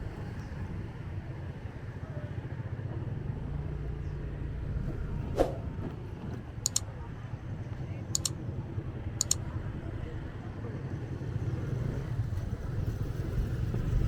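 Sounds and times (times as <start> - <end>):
low road rumble: 0.0 - 14.0
sharp double clicks: 8.2 - 8.4, 9.2 - 9.4.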